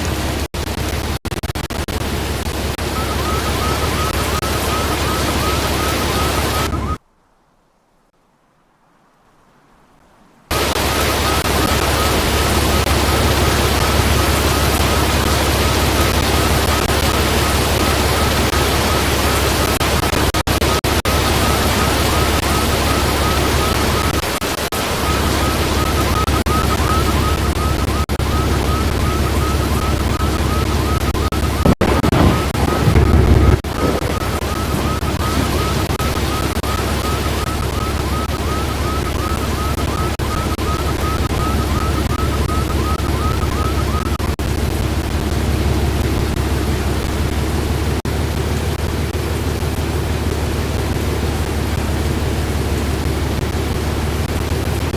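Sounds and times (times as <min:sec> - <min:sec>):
wind buffeting microphone: 0:31.6 - 0:35.9.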